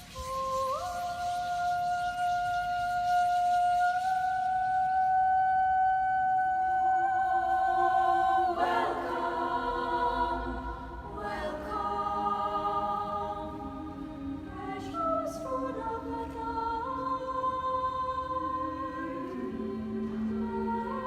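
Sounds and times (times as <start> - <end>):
choir singing held chords: 6.4 - 21.0.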